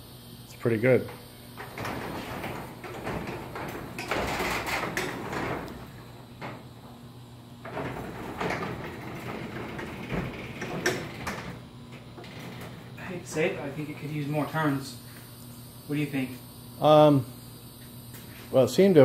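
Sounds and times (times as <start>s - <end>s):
garage door rollers rumbling: 1.4s - 14.8s.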